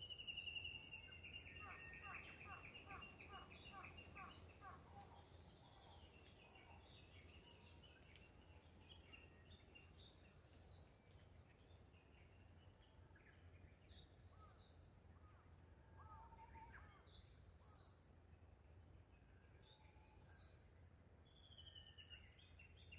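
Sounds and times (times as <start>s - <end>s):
bird chirps: 0.0s - 11.0s
songbird singing: 0.0s - 22.9s.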